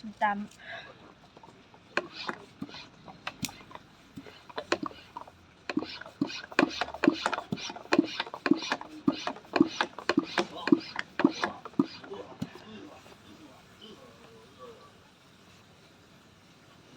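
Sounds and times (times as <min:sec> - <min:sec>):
spray bottle squirting water: 0:01.3 - 0:13.2.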